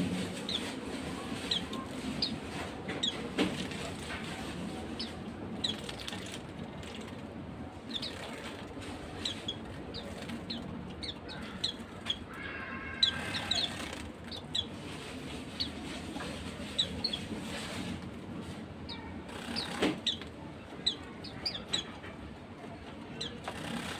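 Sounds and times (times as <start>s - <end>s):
wing flutters: 0.0s - 12.2s, 19.2s - 20.3s, 23.2s - 23.9s
birds giving high chirps: 0.1s - 4.0s, 4.8s - 7.1s, 7.7s - 14.8s, 15.4s - 17.4s, 18.8s - 22.2s, 23.0s - 23.9s.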